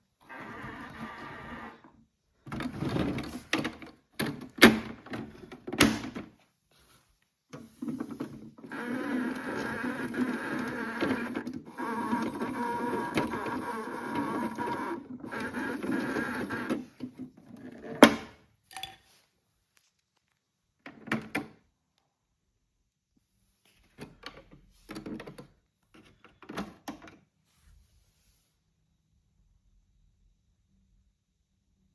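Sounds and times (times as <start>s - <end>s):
toy washing machine motor buzzing: 0.2s - 1.9s, 8.0s - 17.0s.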